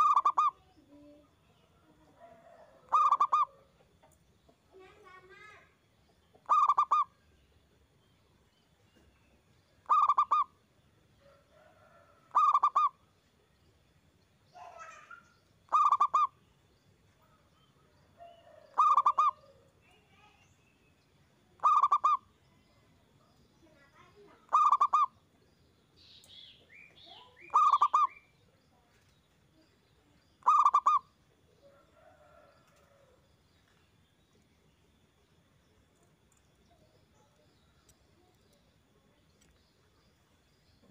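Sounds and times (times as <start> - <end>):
dove cooing: 0.0 - 0.6, 2.2 - 3.7, 6.4 - 7.1, 9.9 - 10.5, 12.3 - 13.0, 15.7 - 16.3, 18.2 - 19.7, 21.6 - 22.2, 24.5 - 25.1, 27.5 - 28.1, 30.4 - 31.0.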